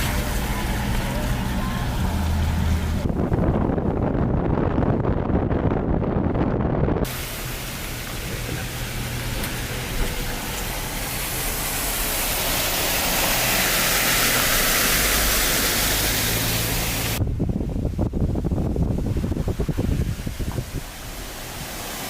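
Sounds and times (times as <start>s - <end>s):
low wind rumble on microphone: 0.0s - 22.0s
floodwater pouring over weir: 7.1s - 17.2s, 19.4s - 22.0s.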